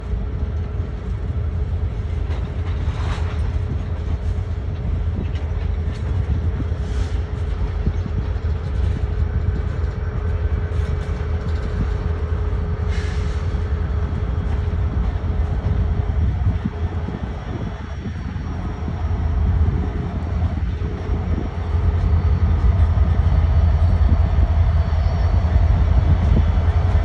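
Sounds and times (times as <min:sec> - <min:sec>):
constant hum: 0:00.0 - 0:27.0
train rumbling on tracks: 0:00.0 - 0:27.0
wheels hissing and screeching: 0:12.9 - 0:13.7.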